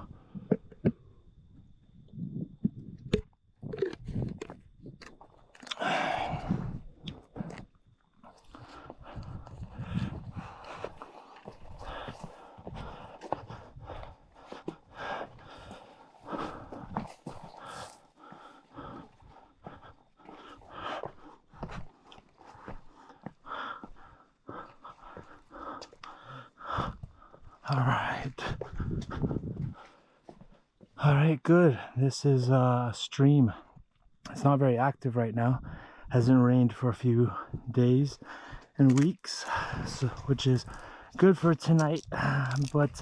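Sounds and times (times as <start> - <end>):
person breathing hard: 5.7 - 7.6, 8.3 - 30.6, 35.6 - 36.2, 37.3 - 43.0
boots crunching on gravel: 38.8 - 43.0.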